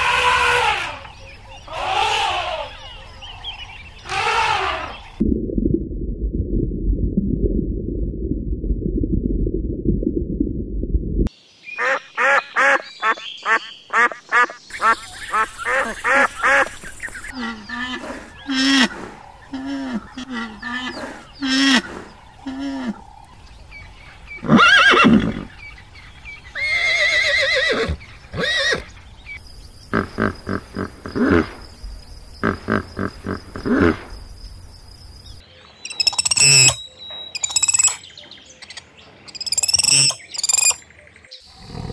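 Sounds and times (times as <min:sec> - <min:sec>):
low rumbling noise: 0:05.1 - 0:11.3.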